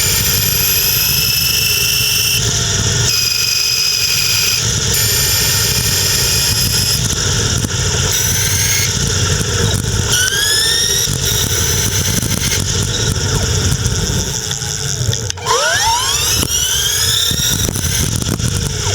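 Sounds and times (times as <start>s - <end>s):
electric bike motor whining: 0.0s - 18.9s.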